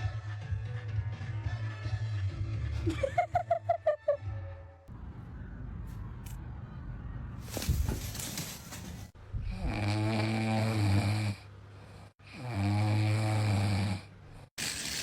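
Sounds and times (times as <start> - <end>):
person snoring: 9.4 - 14.5.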